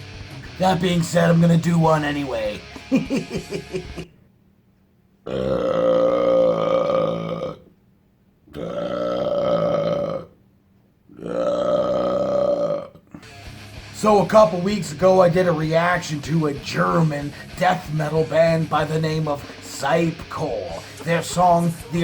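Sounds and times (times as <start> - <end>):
man belching: 5.2 - 7.7, 8.5 - 10.4, 11.1 - 13.4.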